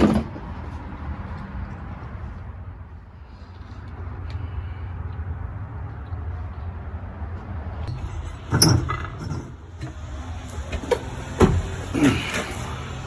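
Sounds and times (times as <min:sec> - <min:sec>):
tools knocking and clanking: 0:07.9 - 0:10.1.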